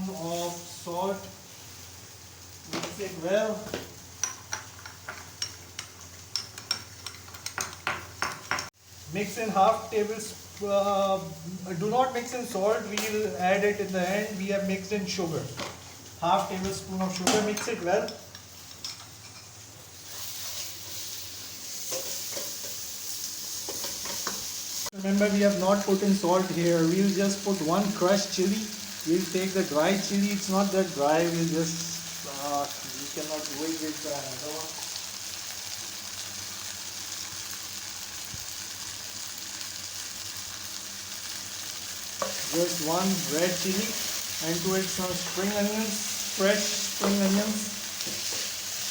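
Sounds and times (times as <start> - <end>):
onions sizzling in oil: 0.0 - 48.9
stirring scrapes in pan: 19.3 - 22.8.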